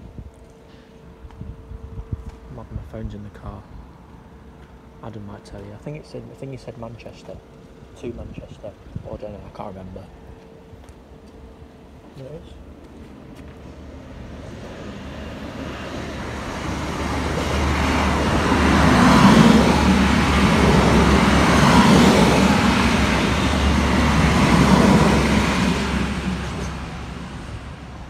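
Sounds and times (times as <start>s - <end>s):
diesel engine hum: 11.6s - 28.0s
wheel-on-rail noise: 12.6s - 28.0s.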